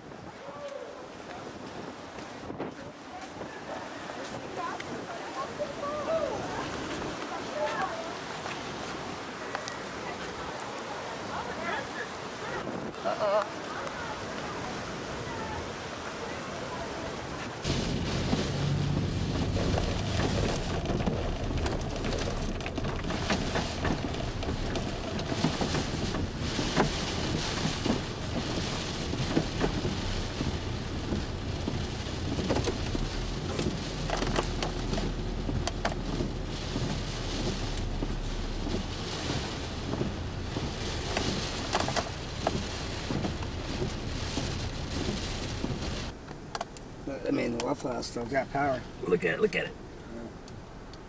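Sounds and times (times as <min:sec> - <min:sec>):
heavy rain beating on a car: 0:04.6 - 0:46.2
raindrops ticking on glass: 0:17.8 - 0:46.1.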